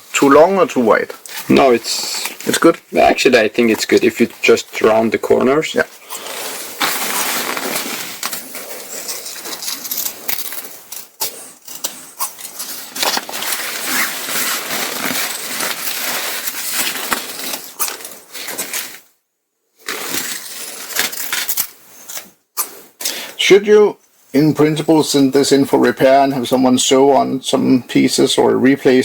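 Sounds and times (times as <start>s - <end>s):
nylon fabric rustling: 1.3s - 10.9s, 11.9s - 19.1s.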